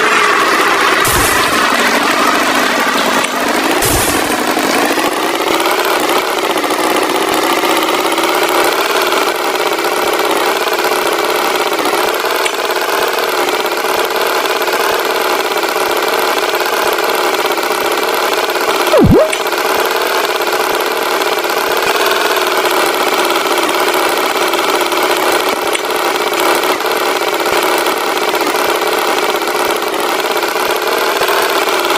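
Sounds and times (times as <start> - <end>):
swooping pitch effect: 18.9 - 19.4.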